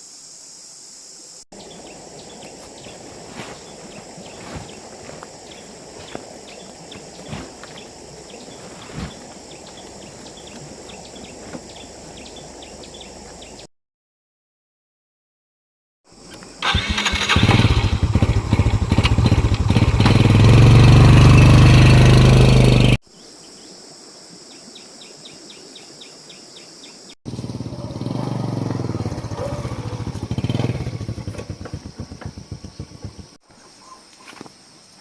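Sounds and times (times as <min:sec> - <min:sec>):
small engine revving: 0:16.3 - 0:23.0, 0:27.3 - 0:33.4.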